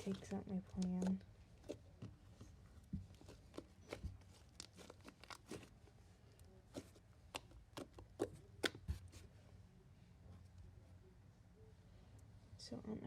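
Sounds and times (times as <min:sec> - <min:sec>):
small clicks and taps handling slime: 0:00.0 - 0:05.7, 0:06.4 - 0:09.1.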